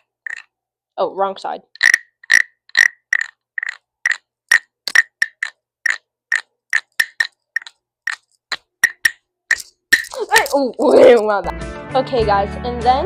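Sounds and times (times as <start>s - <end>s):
wooden guiro scraping: 0.0s - 0.5s, 1.8s - 11.3s.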